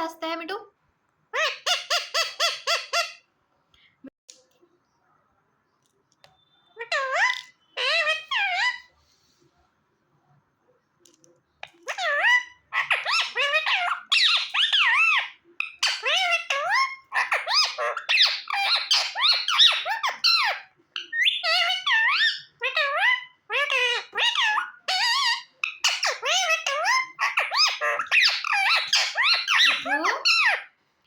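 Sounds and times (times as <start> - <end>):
parakeet chattering: 1.4 - 3.3, 11.6 - 30.7.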